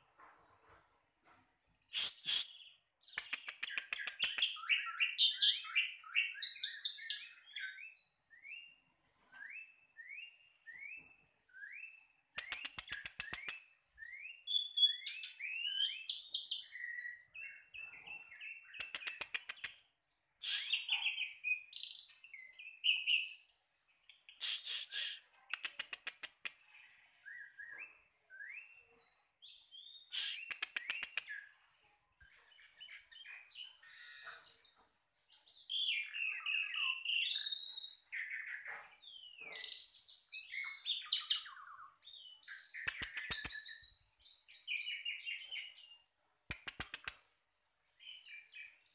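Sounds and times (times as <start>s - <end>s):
bird chirps: 0.2s - 31.6s, 32.2s - 47.2s, 48.0s - 48.9s
bird dry rattle: 18.8s - 19.6s.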